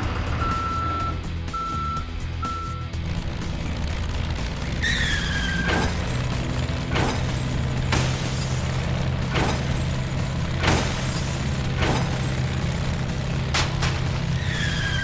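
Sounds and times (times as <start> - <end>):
low vehicle hum: 0.0 - 15.0
reversing beep: 0.4 - 2.9.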